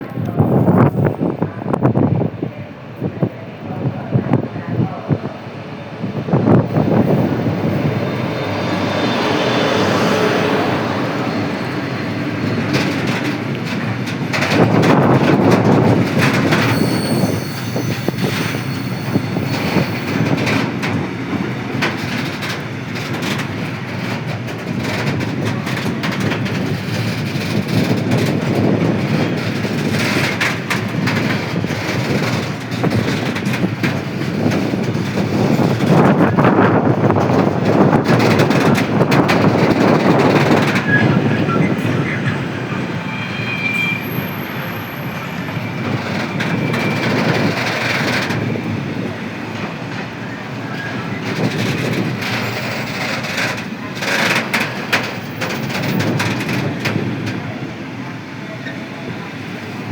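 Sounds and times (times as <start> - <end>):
train wheels clattering over rail joints: 6.2 - 43.1, 44.0 - 59.9
high wheel squeal: 16.2 - 20.4, 39.8 - 48.2.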